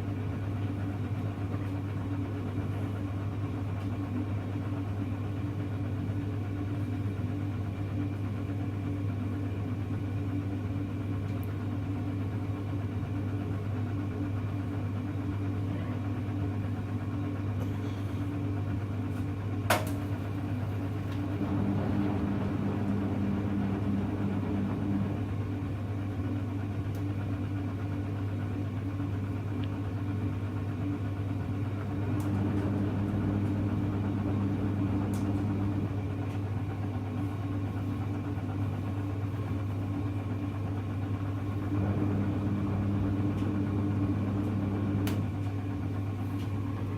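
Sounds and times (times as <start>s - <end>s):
washing machine humming: 0.0s - 46.9s.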